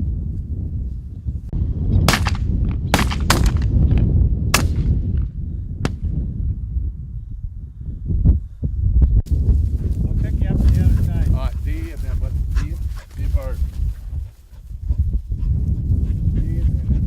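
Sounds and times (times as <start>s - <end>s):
shotgun shots: 2.1s - 3.7s.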